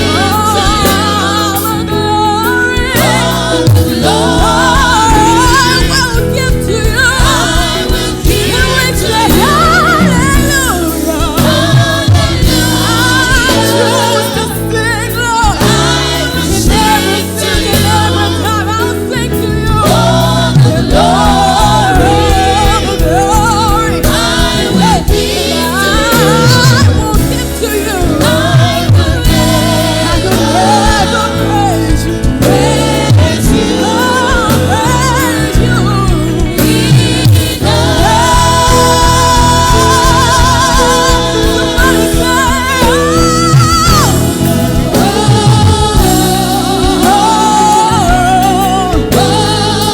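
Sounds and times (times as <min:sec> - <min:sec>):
band accompaniment with bass: 0:00.0 - 0:49.9
voices singing gospel song: 0:00.0 - 0:49.9.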